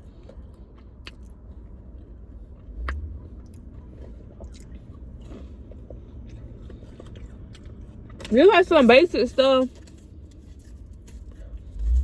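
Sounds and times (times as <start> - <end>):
person chewing food: 0.0 - 8.3.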